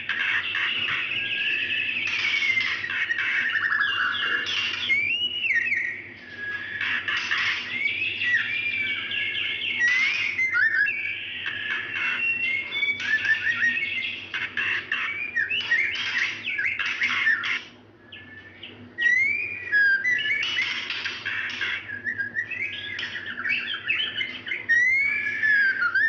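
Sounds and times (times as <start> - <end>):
bird whistling and trilling: 0.0 - 26.0.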